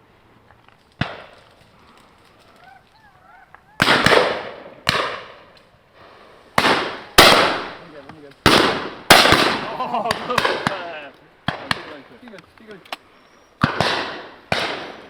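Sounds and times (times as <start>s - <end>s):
shotgun shots echoing: 1.0s - 1.4s, 3.8s - 5.5s, 6.6s - 12.0s, 13.6s - 15.0s
warbling bird call: 2.3s - 4.1s.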